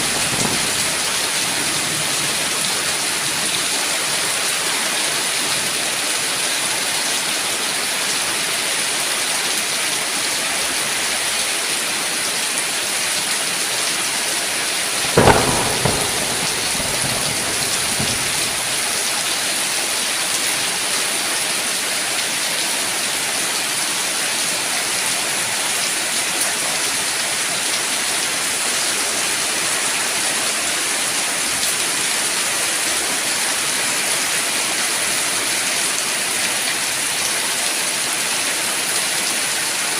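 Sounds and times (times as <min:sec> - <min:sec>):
thunderclap: 0:00.0 - 0:03.0, 0:15.0 - 0:19.5
heavy rain: 0:00.0 - 0:39.9.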